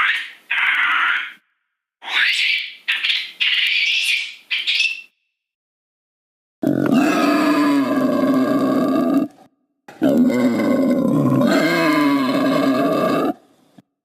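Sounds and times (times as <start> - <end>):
long pitched animal calls: 10.0 - 13.5.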